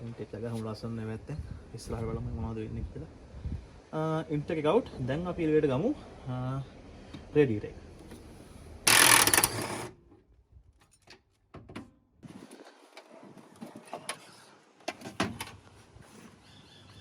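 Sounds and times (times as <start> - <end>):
tools and metal parts clicking: 8.9 - 9.7.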